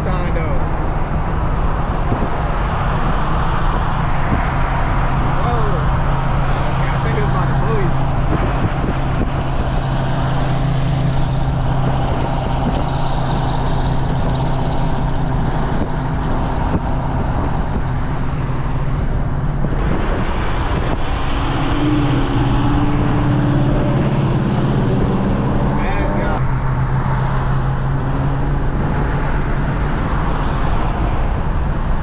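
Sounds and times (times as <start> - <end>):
car engine droning: 0.0 - 32.0
road noise: 0.0 - 32.0.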